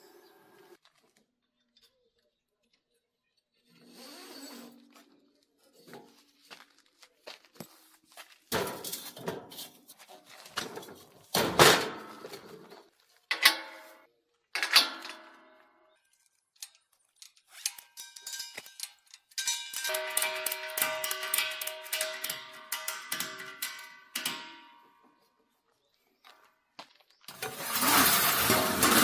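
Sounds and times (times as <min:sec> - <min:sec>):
metal parts and tools clattering: 0:08.5 - 0:15.7, 0:16.6 - 0:25.1, 0:27.3 - 0:29.0
ringing metal clanks: 0:13.3 - 0:14.0, 0:17.6 - 0:25.1, 0:27.3 - 0:29.0.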